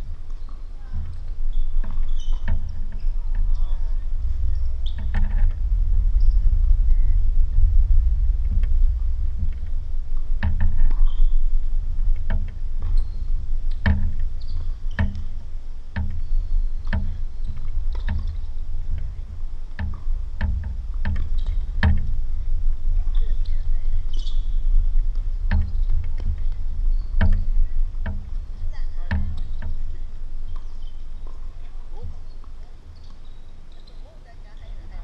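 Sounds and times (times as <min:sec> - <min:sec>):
steady low rumble: 0:00.0 - 0:35.0
tennis balls struck by rackets: 0:23.1 - 0:32.1.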